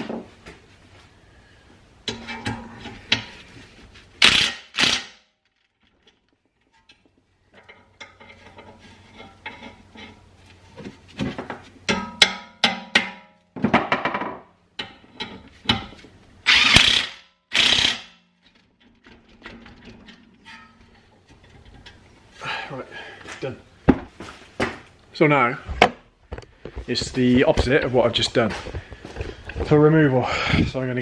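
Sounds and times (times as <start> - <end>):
ratchet wrench ratcheting: 16.5 - 18.2.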